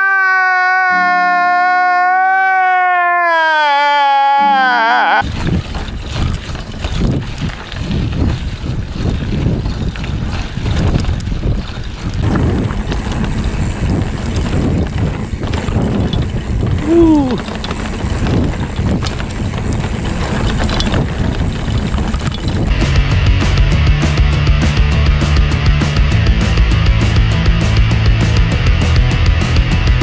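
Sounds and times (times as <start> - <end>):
short falling cry: 0.0 - 5.2, 16.8 - 17.4
mountain bike on dirt trail: 5.2 - 16.8, 17.4 - 23.7
wind buffeting microphone: 5.2 - 30.0.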